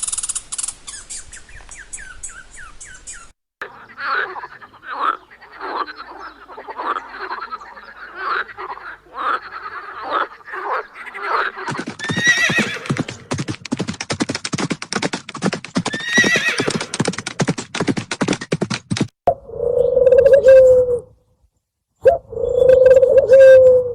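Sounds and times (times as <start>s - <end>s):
frogs croaking: 3.6s - 11.7s
horse whinnying: 11.7s - 13.3s, 15.8s - 17.2s
hooves clip-clopping: 11.7s - 19.1s.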